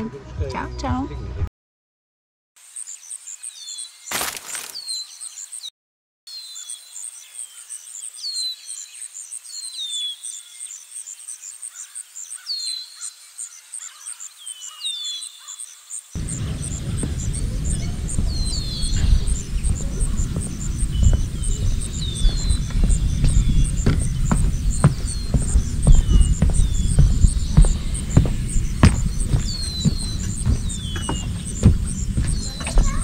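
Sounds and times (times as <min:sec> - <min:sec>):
falling whistled bird calls: 0:02.8 - 0:05.7, 0:13.8 - 0:33.0
high repeating bird chirp: 0:16.2 - 0:33.0
loud low rumble: 0:16.2 - 0:33.0.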